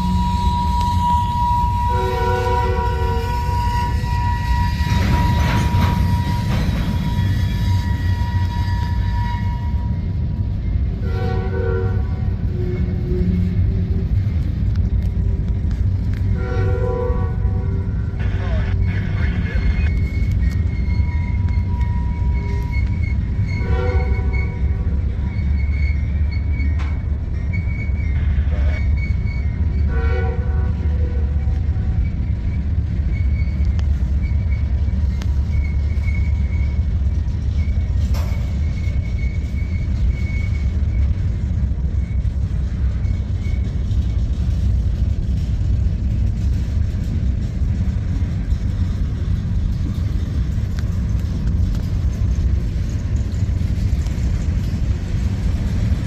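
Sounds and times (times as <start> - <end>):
train horn notes: 0.0 - 10.0, 10.9 - 13.4, 16.3 - 18.4, 23.5 - 25.0, 29.9 - 31.8
faint high wheel squeal: 0.0 - 14.2, 15.7 - 56.0
train wheels rumbling on rail: 0.0 - 56.0.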